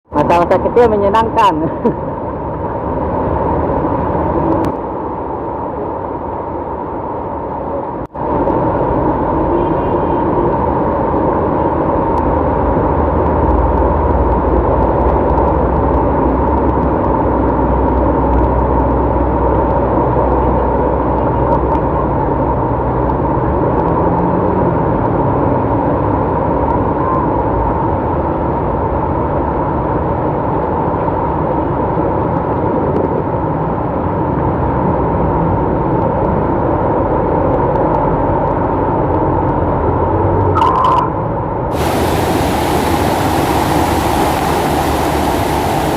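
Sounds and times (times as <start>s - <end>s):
road traffic in the rain: 0.0s - 45.9s.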